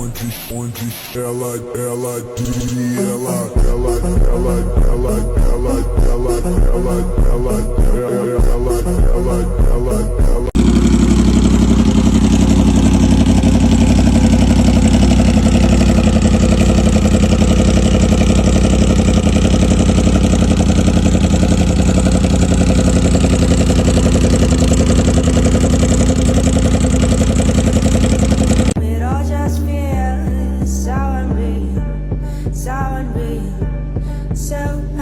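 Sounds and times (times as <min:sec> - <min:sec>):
motorcycle engine running: 0:09.0 - 0:28.8.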